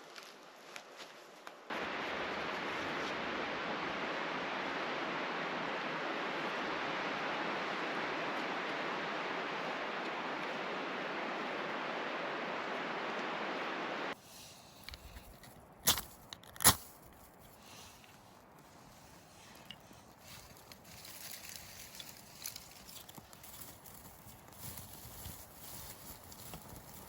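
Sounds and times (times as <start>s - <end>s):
running water rushing: 1.7s - 14.2s.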